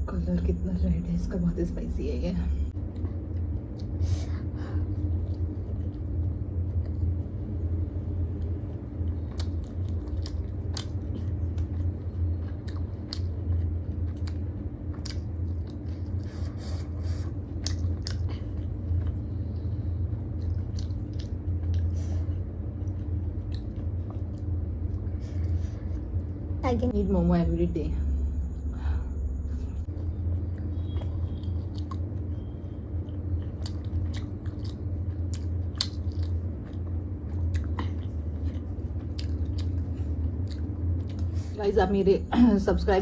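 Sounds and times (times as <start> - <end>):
steady low rumble: 0.0 - 43.0
wet mouth clicks and smacks: 17.6 - 18.2, 20.4 - 21.9.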